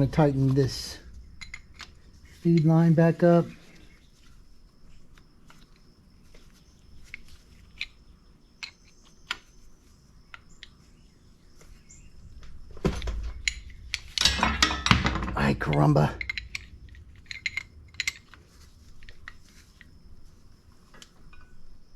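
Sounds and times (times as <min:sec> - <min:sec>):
metal parts clattering: 0:13.4 - 0:19.4.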